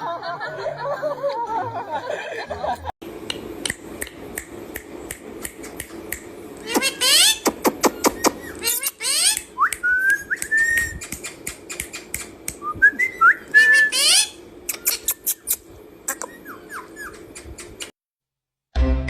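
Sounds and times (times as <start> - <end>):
sharp clicks: 9.3 - 12.6
bird whistling rising notes: 9.6 - 11.1, 12.6 - 14.4.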